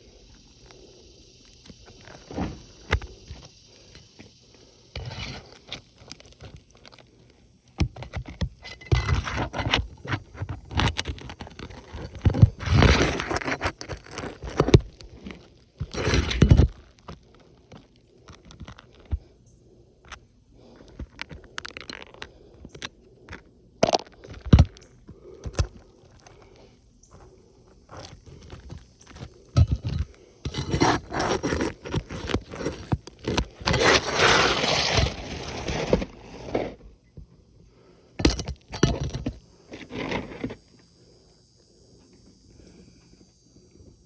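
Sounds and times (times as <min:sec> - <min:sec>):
tools scraping roof shingles: 0:01.8 - 0:04.2, 0:05.0 - 0:19.3, 0:27.9 - 0:36.9, 0:38.2 - 0:40.6.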